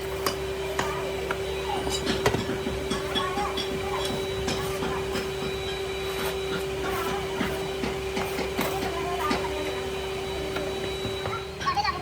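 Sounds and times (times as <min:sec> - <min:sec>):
factory machinery humming: 0:00.0 - 0:12.0.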